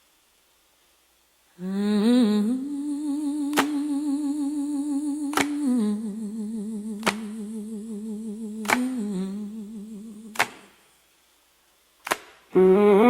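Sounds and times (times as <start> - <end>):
woman humming with vibrato: 1.6 - 10.4, 12.5 - 13.0.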